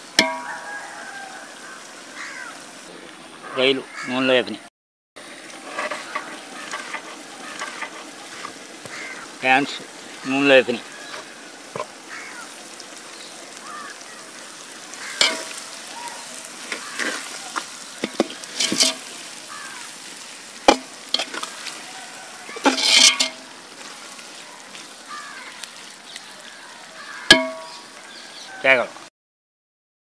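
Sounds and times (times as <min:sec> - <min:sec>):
prawns sizzling in oil: 0:00.0 - 0:04.1, 0:05.2 - 0:29.1
metal ladle scraping pot: 0:00.1 - 0:00.6, 0:05.5 - 0:08.6, 0:15.2 - 0:19.3, 0:20.7 - 0:21.8, 0:22.4 - 0:23.6, 0:27.3 - 0:27.8.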